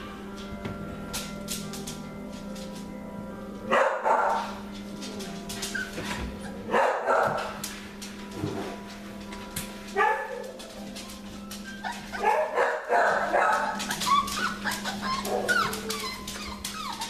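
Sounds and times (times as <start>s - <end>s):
puppies high calls: 11.4s - 17.0s.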